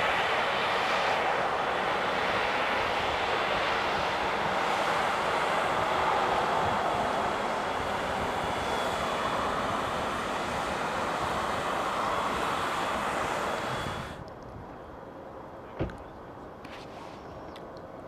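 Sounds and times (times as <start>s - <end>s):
aircraft engine rush: 0.0s - 18.0s
faint high whine: 6.7s - 15.2s.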